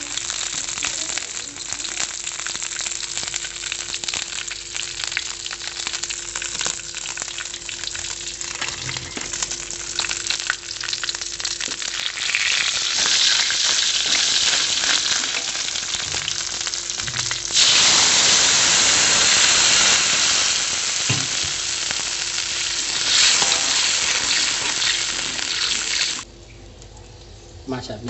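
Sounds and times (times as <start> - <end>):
spices sizzling in hot oil: 0.0 - 26.3
metal spatula scraping wok: 23.0 - 25.9.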